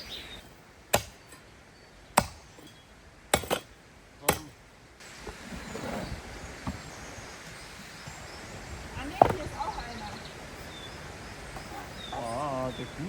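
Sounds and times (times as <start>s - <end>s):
flowing river water: 4.7s - 13.0s.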